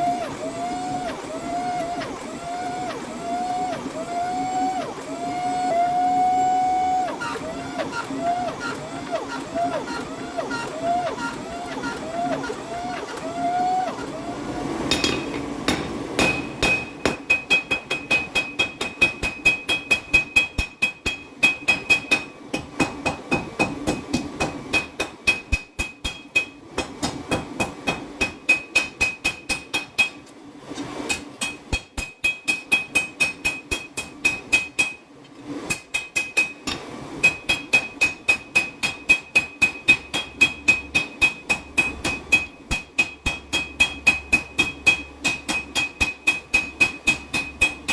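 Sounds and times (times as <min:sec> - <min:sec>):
hammer striking steel on anvil: 0:14.9 - 0:30.2, 0:31.1 - 0:35.0, 0:35.7 - 0:47.9.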